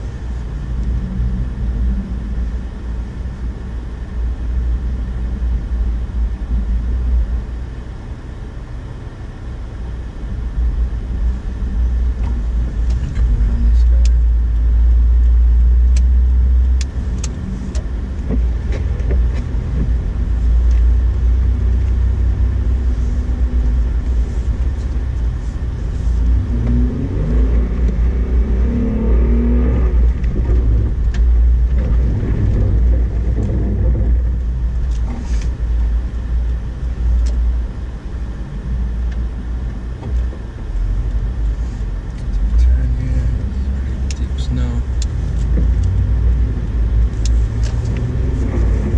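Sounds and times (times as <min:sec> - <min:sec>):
car engine rumbling: 0:00.0 - 0:48.9
tyres driving through snow: 0:09.8 - 0:48.9.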